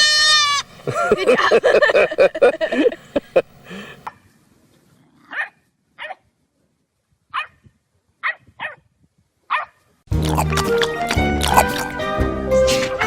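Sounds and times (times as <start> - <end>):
dog barking: 5.3 - 6.2, 7.3 - 7.6, 8.2 - 8.8, 9.5 - 9.8
music: 10.1 - 13.0.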